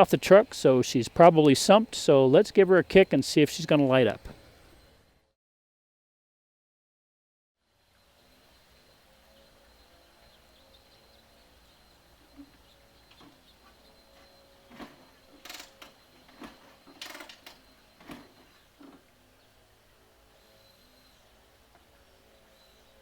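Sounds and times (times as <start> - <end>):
faint steady background noise: 0.0 - 5.3
mechanical clunks and scrapes: 14.2 - 19.1.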